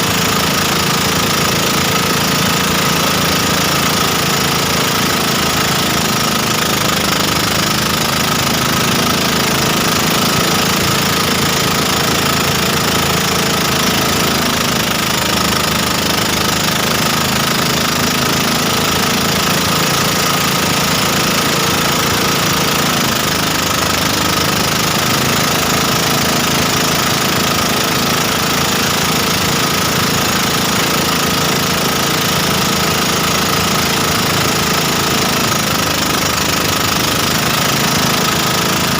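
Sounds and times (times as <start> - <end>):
motorboat engine running: 0.0 - 38.9.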